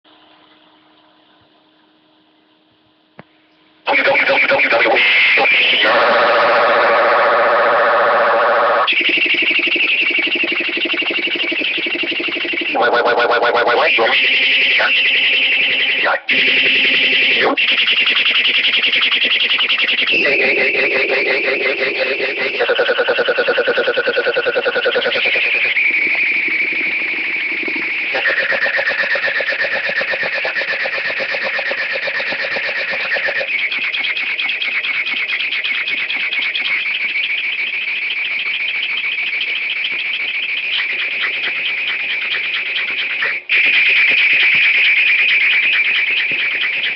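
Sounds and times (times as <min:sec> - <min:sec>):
text-to-speech voice repeating syllables: 0:03.9 - 0:06.0, 0:12.7 - 0:14.2
text-to-speech voice droning: 0:03.9 - 0:08.8, 0:12.4 - 0:17.8, 0:19.5 - 0:26.2.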